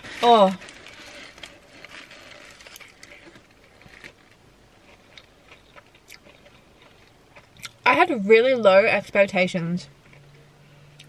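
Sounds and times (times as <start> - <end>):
person chewing crunchy food: 0.0 - 7.8.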